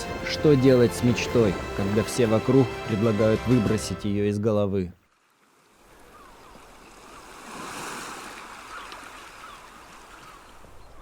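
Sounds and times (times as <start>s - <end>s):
sea waves washing in: 6.7s - 10.4s.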